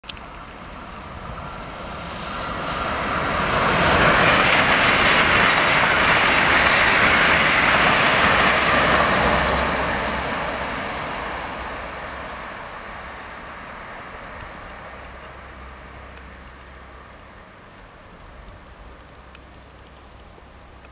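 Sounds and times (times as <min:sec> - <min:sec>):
high-speed train passing: 0:00.0 - 0:20.9.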